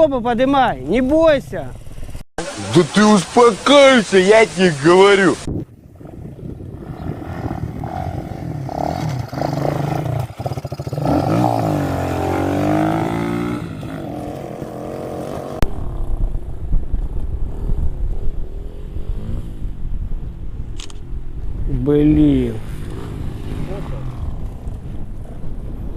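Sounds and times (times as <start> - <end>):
pit bike engine revving: 0.8 - 2.8, 6.0 - 15.6, 22.1 - 25.4.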